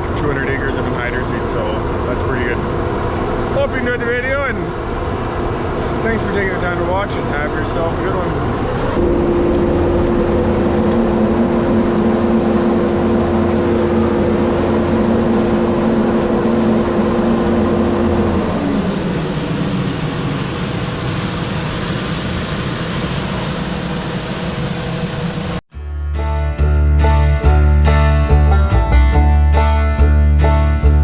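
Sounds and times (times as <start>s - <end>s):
large machinery running: 0.0s - 25.6s
sliding hum tone: 8.5s - 25.6s.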